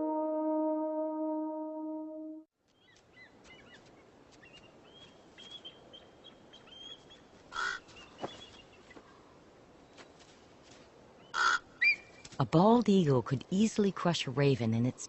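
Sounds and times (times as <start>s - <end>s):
brass music cue: 0.0s - 2.5s.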